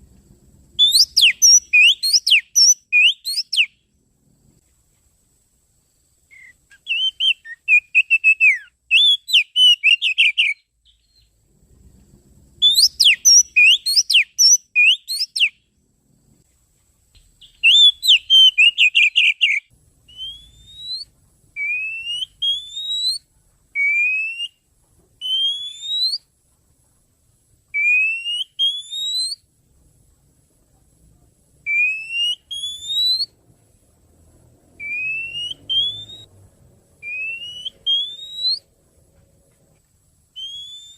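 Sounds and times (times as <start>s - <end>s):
bird chattering and whistling: 0.8s - 3.7s, 6.3s - 11.3s, 12.6s - 15.5s, 17.4s - 23.2s, 25.2s - 26.2s, 27.8s - 29.4s, 31.7s - 33.3s, 34.8s - 36.3s, 37.0s - 38.7s, 40.4s - 40.9s.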